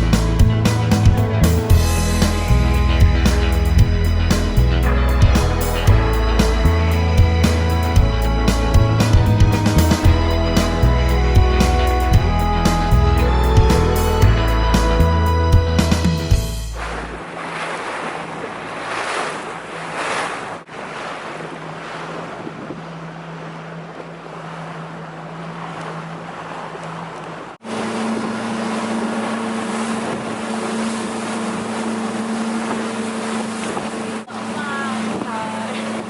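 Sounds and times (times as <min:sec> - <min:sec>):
motorboat engine running: 0:00.0 - 0:36.0
water rushing against hull: 0:00.0 - 0:36.0
wind on microphone: 0:21.2 - 0:23.2.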